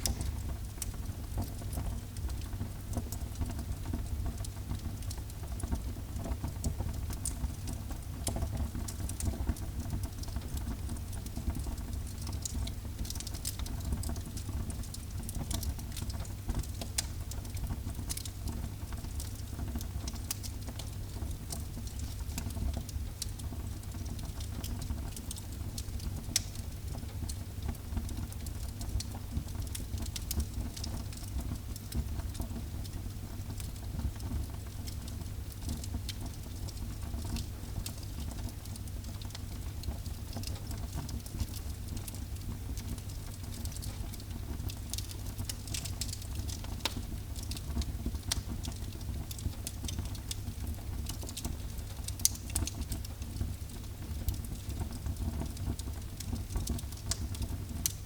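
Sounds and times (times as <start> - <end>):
low rumble of flames: 0.0 - 2.5
fire crackling and popping: 0.0 - 58.0.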